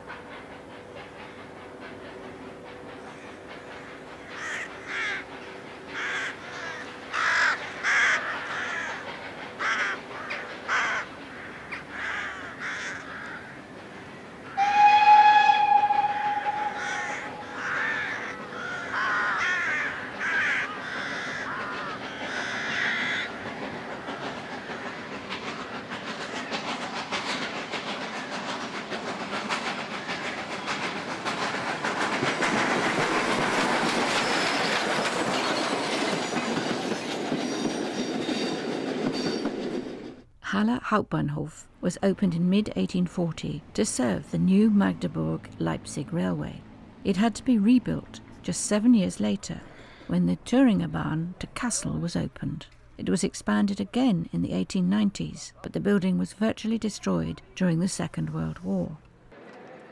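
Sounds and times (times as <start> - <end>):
train rumble: 0.0 - 59.5
crows cawing: 3.1 - 5.3, 6.0 - 13.7, 15.9 - 23.4
train horn: 14.5 - 18.2.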